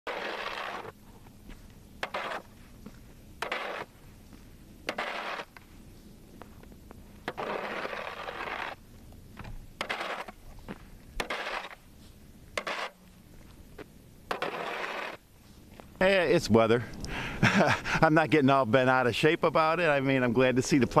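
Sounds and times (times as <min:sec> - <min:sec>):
snow shovel scraping pavement: 0:00.0 - 0:16.2.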